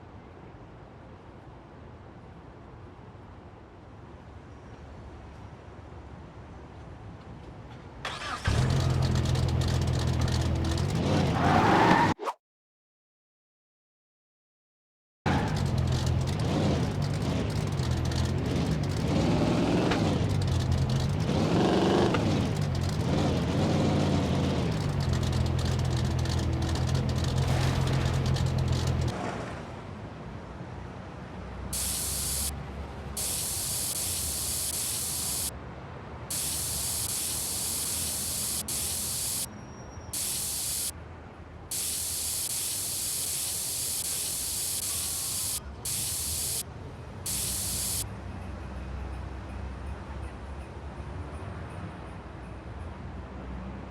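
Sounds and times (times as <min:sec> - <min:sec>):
vehicle engine running: 0:08.5 - 0:11.2, 0:15.3 - 0:29.1, 0:31.8 - 0:32.5, 0:33.1 - 0:35.5, 0:36.3 - 0:39.5, 0:40.2 - 0:40.9, 0:41.7 - 0:46.6, 0:47.3 - 0:50.4
high spraying hiss: 0:31.8 - 0:32.5, 0:33.2 - 0:35.5, 0:36.3 - 0:39.5, 0:40.2 - 0:40.9, 0:41.7 - 0:46.6, 0:47.3 - 0:48.0.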